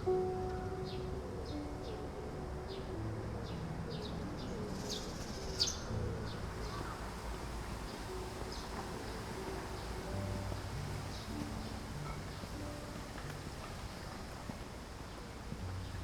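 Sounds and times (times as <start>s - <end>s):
soft background music: 0.0s - 16.0s
small birds chirping: 3.5s - 13.0s.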